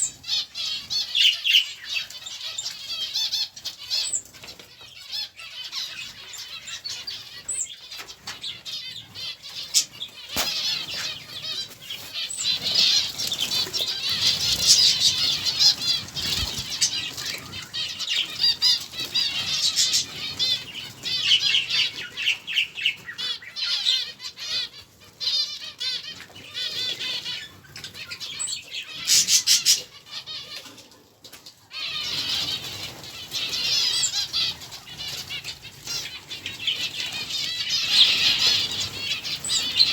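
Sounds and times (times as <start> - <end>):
small birds chirping: 0.0 - 39.9
wings fluttering: 7.3 - 22.2.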